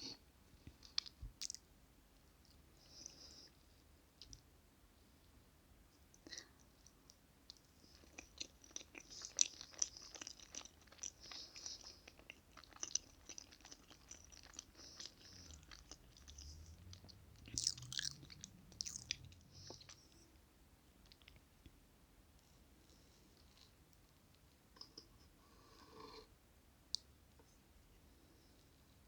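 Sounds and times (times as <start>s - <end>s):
wet chewing mouth clicks: 7.5s - 20.0s.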